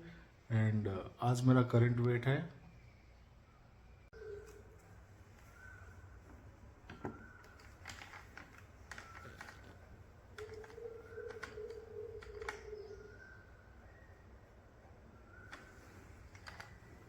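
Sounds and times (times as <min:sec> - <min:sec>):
faint clicks and taps: 0:06.2 - 0:09.8.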